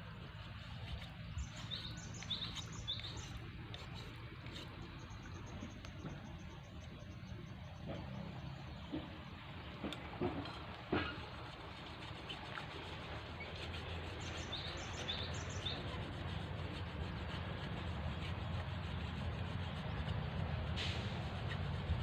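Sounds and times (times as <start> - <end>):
bird chirping: 1.0 - 9.4, 13.5 - 16.2.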